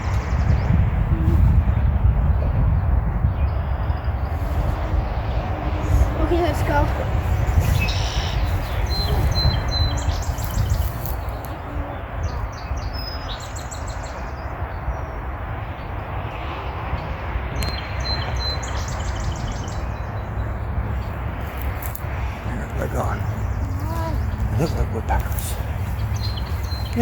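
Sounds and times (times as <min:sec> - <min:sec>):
birds chattering: 0:00.0 - 0:16.0, 0:17.6 - 0:27.0
steady low rumble: 0:00.0 - 0:27.0
thin whistled bird notes: 0:07.7 - 0:11.6.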